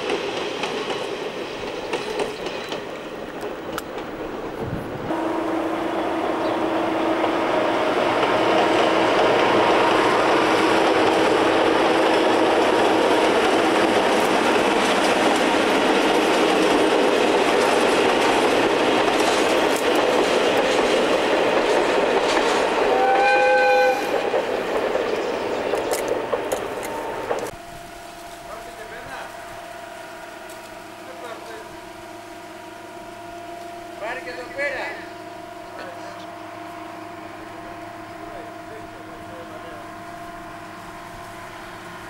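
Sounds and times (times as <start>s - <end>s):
train rumbling over bridge: 0.0s - 42.0s
train horn: 5.0s - 14.7s, 22.8s - 24.3s, 26.3s - 42.0s.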